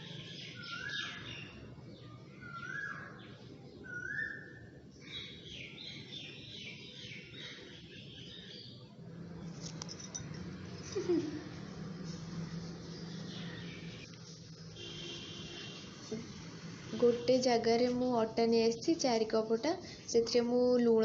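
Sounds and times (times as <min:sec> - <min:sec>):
birds chirping and whistling: 0:00.0 - 0:01.7, 0:02.3 - 0:08.8, 0:12.0 - 0:14.1.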